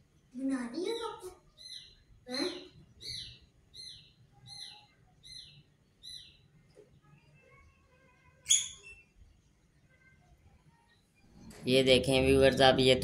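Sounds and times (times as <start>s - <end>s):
small bird chirping: 0.2s - 7.7s, 8.4s - 9.5s.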